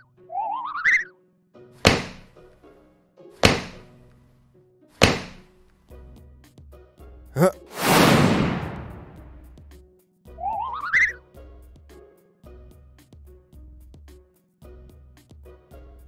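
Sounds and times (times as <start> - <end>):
heavy cartoon thunks: 1.8 - 2.3, 3.4 - 3.9, 5.0 - 5.5, 7.4 - 9.4.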